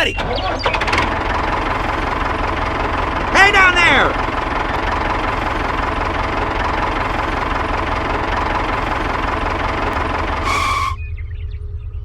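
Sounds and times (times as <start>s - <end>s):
engine running with rattle: 0.2s - 3.4s, 4.2s - 12.0s
short high tone: 10.4s - 11.0s.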